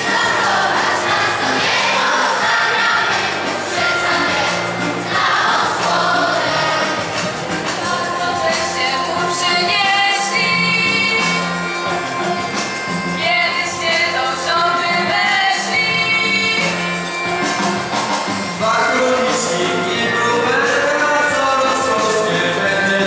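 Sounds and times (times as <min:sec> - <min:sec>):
instrumental accompaniment: 0:00.0 - 0:23.0
singers performing a carol: 0:00.0 - 0:23.0.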